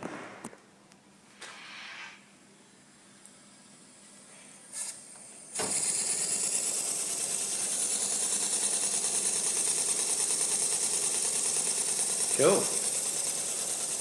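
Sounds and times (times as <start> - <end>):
small engine running fast: 5.6 - 14.0.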